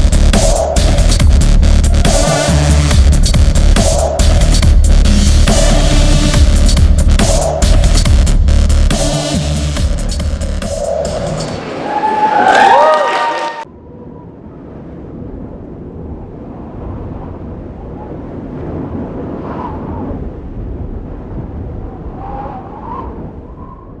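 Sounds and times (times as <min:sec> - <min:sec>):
low rumble of venue noise: 0:00.0 - 0:07.2
dance music: 0:00.0 - 0:13.6.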